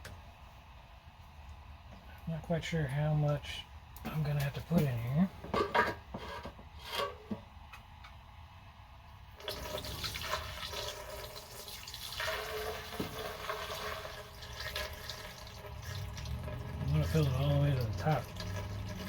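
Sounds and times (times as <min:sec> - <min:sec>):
liquid pouring into metal tank: 0:09.4 - 0:19.0.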